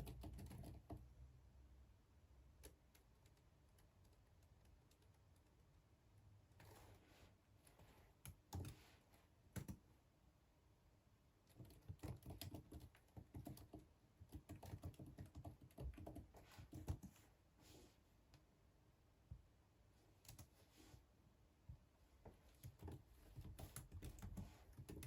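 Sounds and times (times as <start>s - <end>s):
typing on computer keyboard: 0.0s - 1.0s, 2.6s - 5.6s, 8.2s - 8.8s, 9.6s - 9.8s, 11.5s - 17.2s, 22.6s - 25.0s.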